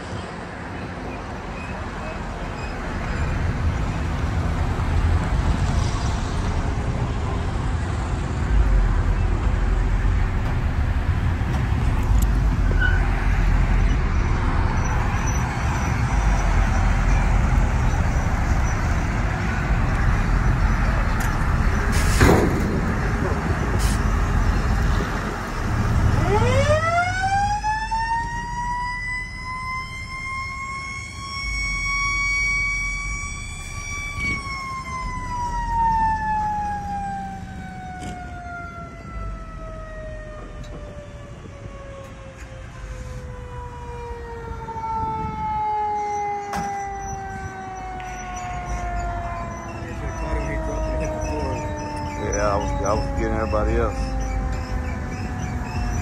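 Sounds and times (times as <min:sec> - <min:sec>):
car engines rumbling: 0:00.0 - 0:56.0
outdoor noise: 0:00.0 - 0:56.0
siren wailing: 0:23.1 - 0:56.0.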